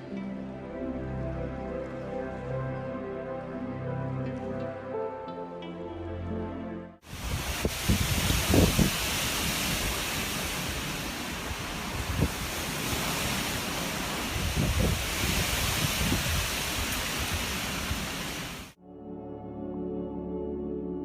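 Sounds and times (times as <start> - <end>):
soft ambient music: 0.0 - 7.0, 18.8 - 21.0
rushing outdoor noise: 7.0 - 18.8.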